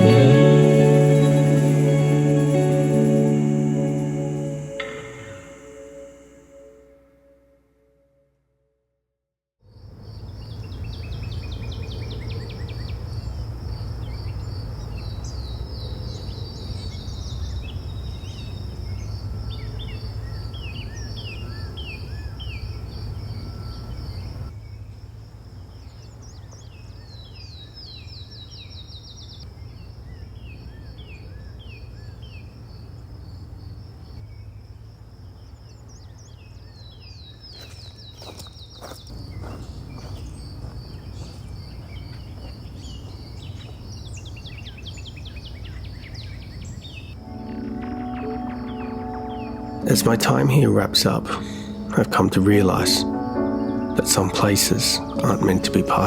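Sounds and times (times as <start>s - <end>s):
birds calling: 37.5s - 51.6s.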